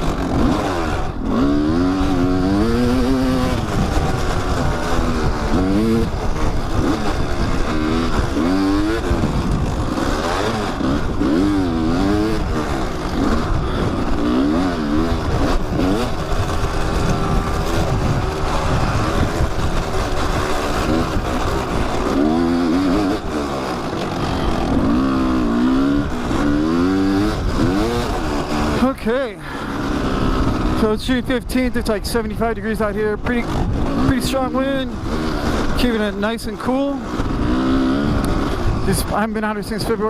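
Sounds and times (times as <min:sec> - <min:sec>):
wind rumble on microphone: 0:00.0 - 0:29.1, 0:29.8 - 0:40.0
dirt bike engine revving: 0:00.0 - 0:40.0.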